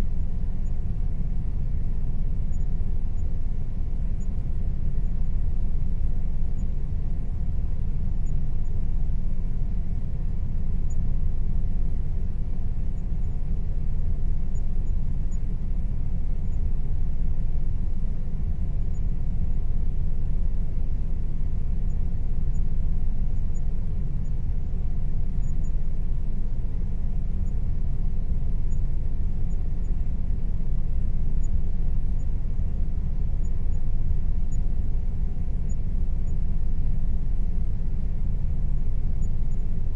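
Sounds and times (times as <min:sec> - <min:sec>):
air conditioner running: 0:00.0 - 0:39.9.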